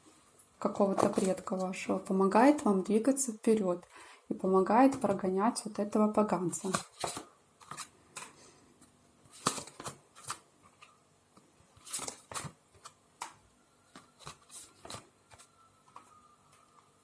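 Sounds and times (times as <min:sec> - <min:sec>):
cards flicking and rustling: 0:06.6 - 0:08.4, 0:09.2 - 0:10.9, 0:11.7 - 0:16.0.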